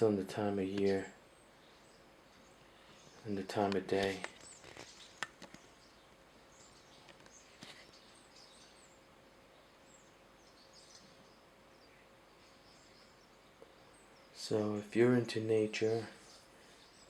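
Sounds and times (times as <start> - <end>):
faint high bird chirps: 4.4 - 15.0.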